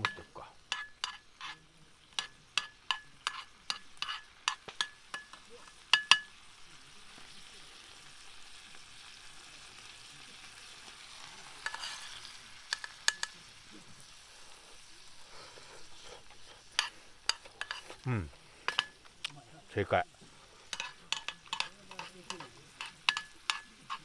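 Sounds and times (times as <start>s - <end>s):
metal utensil tapping frying pan: 0.0s - 6.6s, 11.6s - 13.6s, 16.2s - 19.4s, 20.6s - 24.0s
food sizzling softly: 0.0s - 24.0s.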